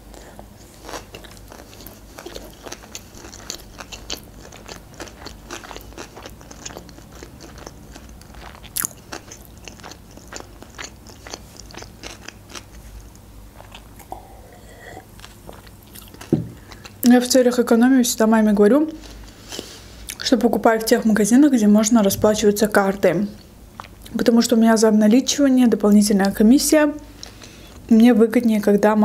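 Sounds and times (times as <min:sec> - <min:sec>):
chewing with crunchy clicks: 0:00.1 - 0:14.2, 0:15.2 - 0:17.0.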